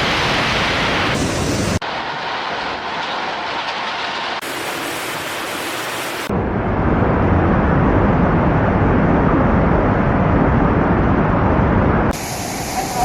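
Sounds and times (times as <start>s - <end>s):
thin hiss: 12.2s - 13.0s.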